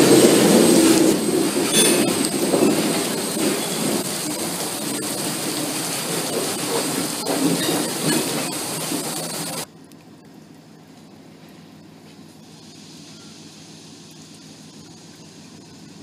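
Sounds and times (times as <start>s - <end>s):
freight train wheels on rails: 0.0s - 9.7s.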